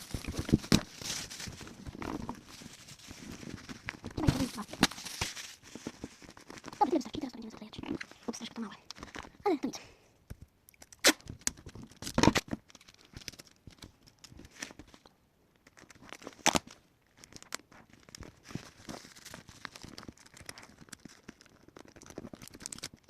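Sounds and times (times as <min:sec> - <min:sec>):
paper and plastic crinkling: 0:00.0 - 0:09.4, 0:11.2 - 0:23.0
sticky tape pulled and torn: 0:10.8 - 0:13.4.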